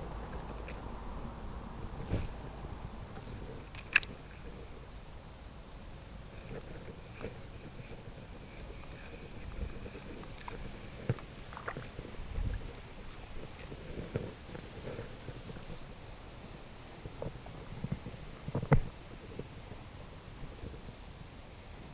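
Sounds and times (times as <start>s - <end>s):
river water sloshing: 9.8s - 13.7s.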